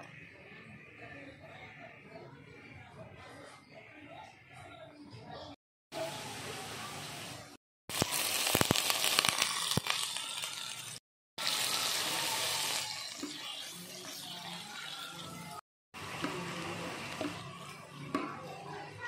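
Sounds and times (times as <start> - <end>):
squid frying in hot oil: 7.9 - 15.1.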